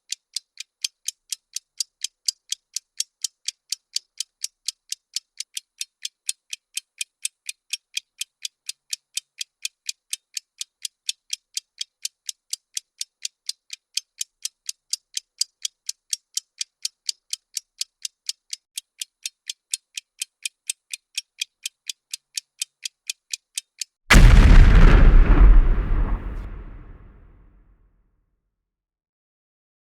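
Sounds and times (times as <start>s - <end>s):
bomb timer ticking: 0.0s - 27.1s
explosion with deep rumble: 24.1s - 27.3s.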